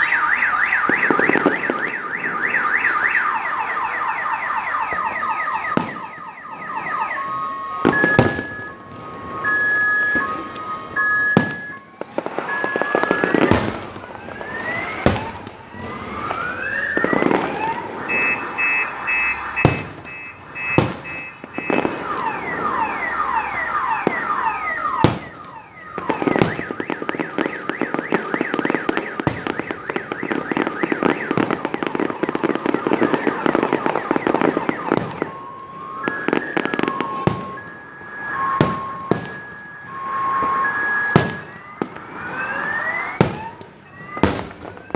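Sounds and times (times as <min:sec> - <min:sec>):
firework bangs: 0:00.0 - 0:44.9
firework crackling: 0:00.0 - 0:44.9
firework rockets whistling: 0:00.0 - 0:44.9
steady beeping tones: 0:16.6 - 0:41.9.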